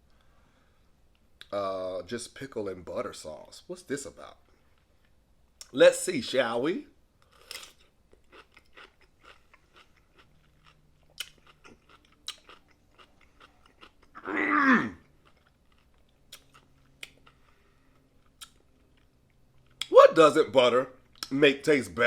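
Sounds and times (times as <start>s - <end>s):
crunchy chewing of pickle: 7.2s - 19.9s.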